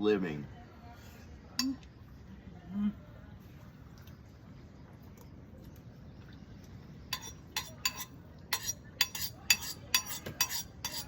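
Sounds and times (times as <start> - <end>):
cutlery clinking against dish: 7.2 - 11.0.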